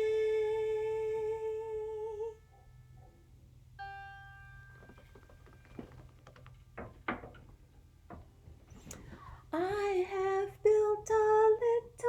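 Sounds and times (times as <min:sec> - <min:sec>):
lyre note plucked: 0:03.8 - 0:07.4
soft clicks and rustles: 0:04.7 - 0:09.8.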